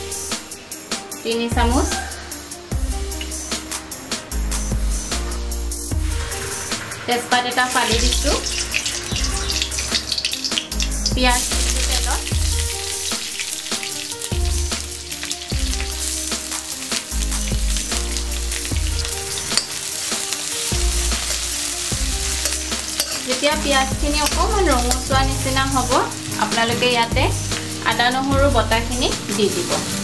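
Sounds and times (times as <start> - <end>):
sizzling in hot oil: 0.0 - 1.2, 2.3 - 30.0
background music with bass: 0.0 - 7.0, 7.8 - 30.0
onions dropped into oil: 7.6 - 23.3
metal ladle stirring: 7.6 - 25.3.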